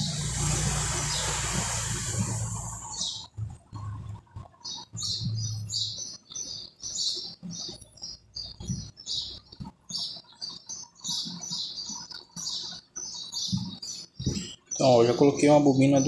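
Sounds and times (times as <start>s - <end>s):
copper coils rustling and knocking: 0.0s - 5.9s, 6.7s - 15.9s
bird chirping: 0.0s - 16.0s.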